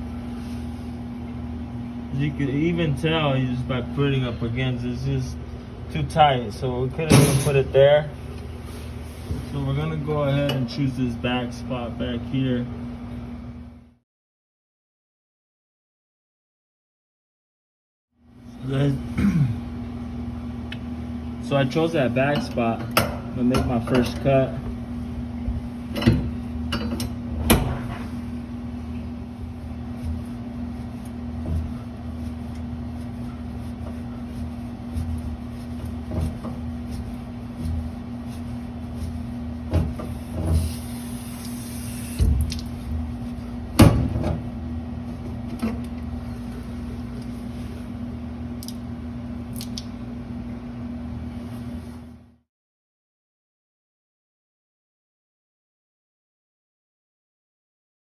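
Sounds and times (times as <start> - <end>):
machine hum: 18.2 - 51.3.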